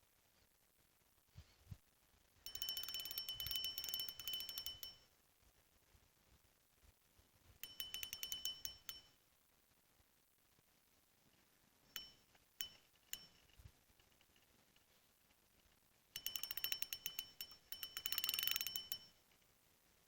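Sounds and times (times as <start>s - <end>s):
fishing rod bite bell ringing: 2.5s - 5.0s, 7.6s - 9.2s, 12.0s - 13.5s, 16.2s - 19.2s.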